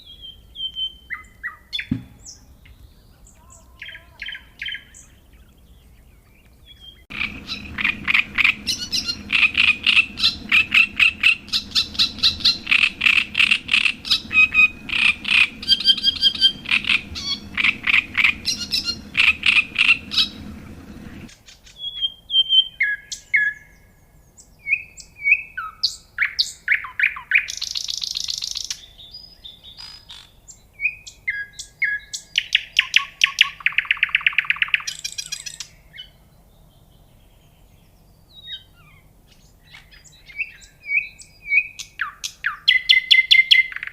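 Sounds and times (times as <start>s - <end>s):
whistled bird notes: 0.0s - 36.2s, 38.2s - 43.9s
songbirds chirping and trilling: 0.0s - 43.9s
low background hum: 5.2s - 21.3s
buzzy bird trill: 6.7s - 21.3s.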